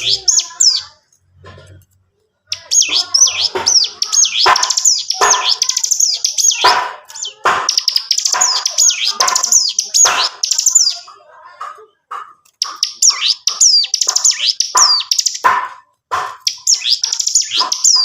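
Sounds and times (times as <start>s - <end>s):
bird singing high chirps and whistles: 2.5s - 11.1s, 12.6s - 15.4s, 16.3s - 18.0s.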